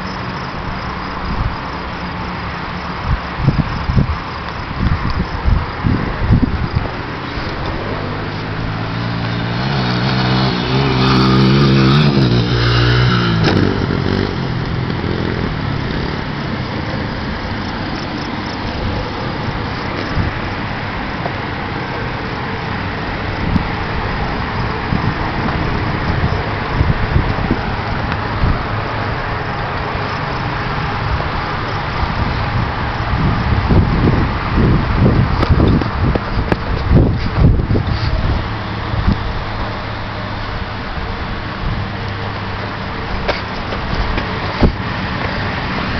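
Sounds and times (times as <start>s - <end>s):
steady rushing noise: 0.0s - 45.9s
dirt bike engine revving: 5.8s - 40.1s.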